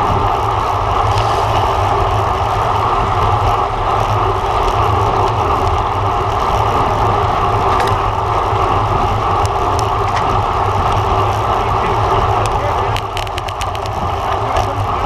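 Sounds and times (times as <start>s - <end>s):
bicycle tyre noise: 0.0s - 15.0s
faint clicks: 12.4s - 14.7s.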